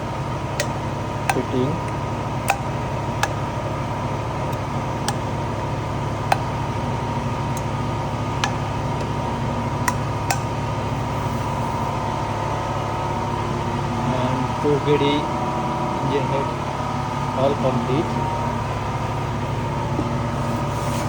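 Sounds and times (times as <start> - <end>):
steady mechanical hum: 0.0 - 21.0
sharp clicks: 0.6 - 3.4.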